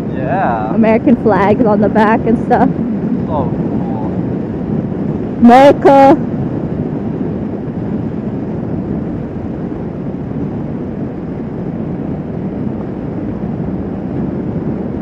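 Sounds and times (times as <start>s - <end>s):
motorcycle engine: 0.0s - 5.8s
wind rushing over microphone: 0.0s - 15.0s.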